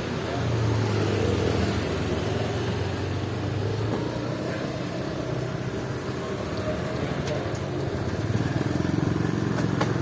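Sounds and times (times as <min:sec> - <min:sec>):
road and wind noise: 0:00.0 - 0:10.0.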